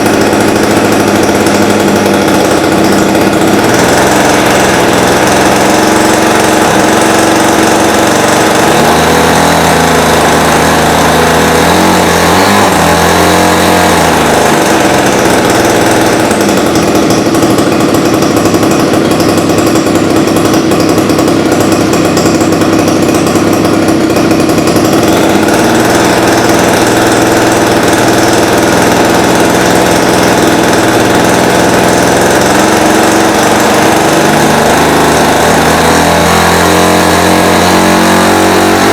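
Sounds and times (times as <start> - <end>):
model aircraft engine running: 0.0 - 38.9.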